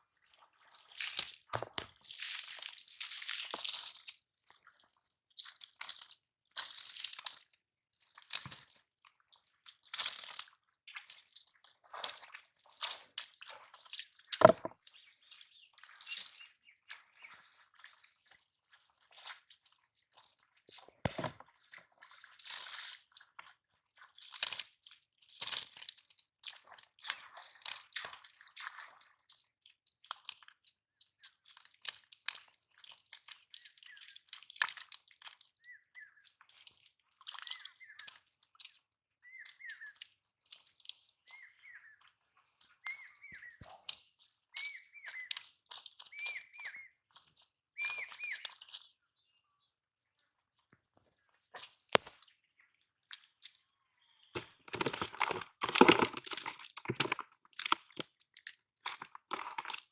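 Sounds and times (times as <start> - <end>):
crunching and rustling handling: 54.4 - 59.9.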